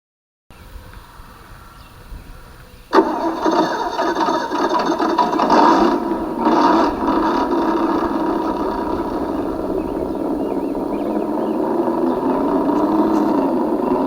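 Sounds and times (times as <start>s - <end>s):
simulated engine through small speaker: 2.9s - 14.0s.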